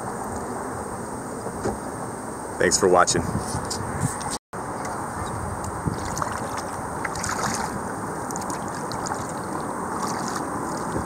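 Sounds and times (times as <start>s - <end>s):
wind on microphone: 3.0s - 11.0s
water rushing: 4.6s - 11.0s.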